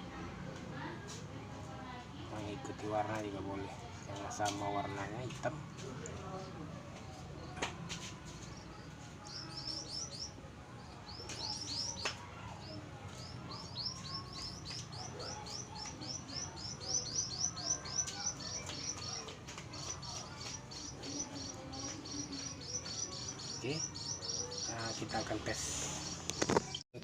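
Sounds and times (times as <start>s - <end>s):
small bird chirping: 11.1s - 12.1s.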